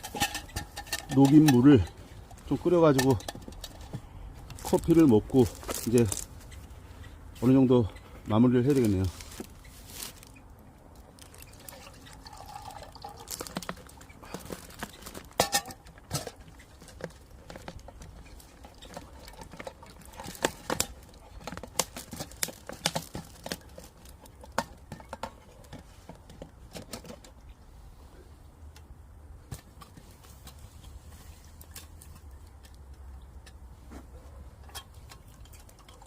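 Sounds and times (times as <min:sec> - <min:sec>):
camp cookware clinking: 0:00.0 - 0:06.6, 0:11.2 - 0:27.4, 0:34.6 - 0:36.0
water pouring and sloshing: 0:11.1 - 0:24.6, 0:34.7 - 0:36.0.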